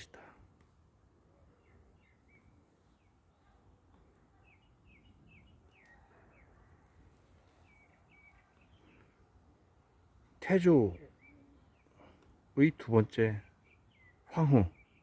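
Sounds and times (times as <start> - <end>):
low outdoor background noise: 0.0 - 15.0
songbird chirps: 0.0 - 15.0.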